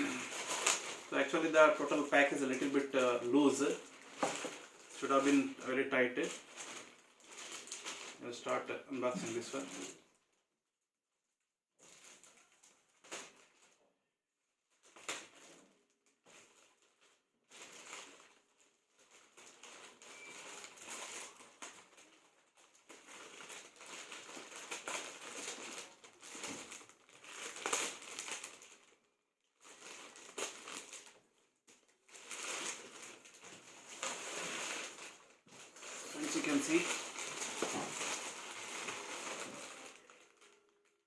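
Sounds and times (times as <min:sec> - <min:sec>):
packaging crinkling and tearing: 0:00.0 - 0:10.0, 0:11.8 - 0:13.8, 0:14.8 - 0:41.0.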